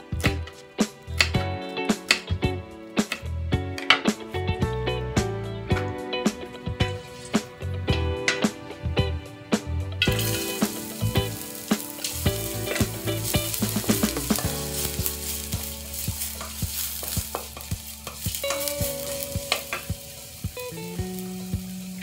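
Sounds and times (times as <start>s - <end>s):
wooden spatula scraping a wok: 7.0s - 7.5s, 10.1s - 20.4s
shallots and garlic sizzling in oil: 10.0s - 22.0s.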